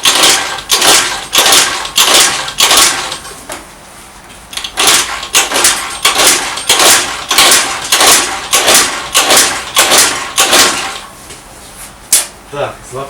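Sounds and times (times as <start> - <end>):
scooter engine being kick-started: 0.0 - 3.2, 4.6 - 11.1.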